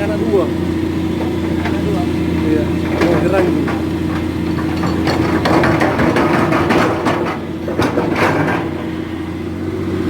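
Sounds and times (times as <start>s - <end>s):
engine idling: 0.0s - 10.0s
clicks and knocks: 2.8s - 8.9s.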